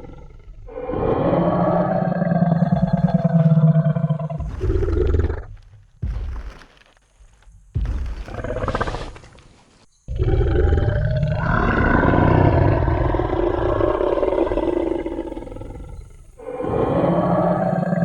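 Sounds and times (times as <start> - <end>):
deep dinosaur roar: 0.0 - 5.6, 10.1 - 18.0.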